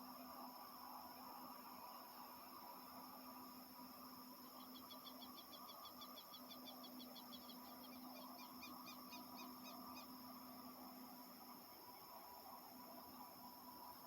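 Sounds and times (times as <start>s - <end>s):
faint steady hum: 0.0s - 14.0s
insect drone: 0.0s - 14.0s
small bird chirping: 4.5s - 10.2s.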